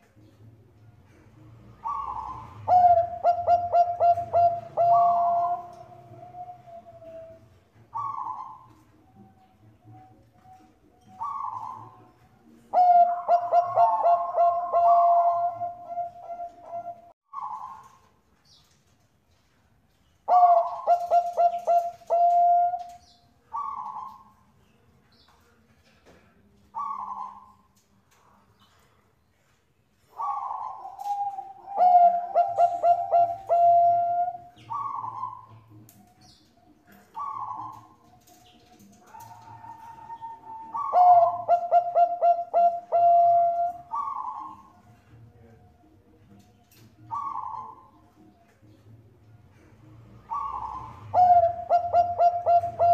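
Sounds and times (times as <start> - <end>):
dove cooing: 1.1 - 18.1, 20.3 - 24.5, 26.7 - 27.7, 30.0 - 48.8, 49.5 - 52.9.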